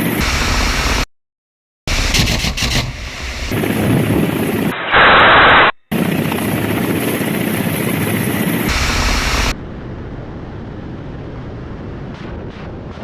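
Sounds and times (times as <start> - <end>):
helicopter rotor and engine noise: 3.5 - 4.8, 5.9 - 13.0.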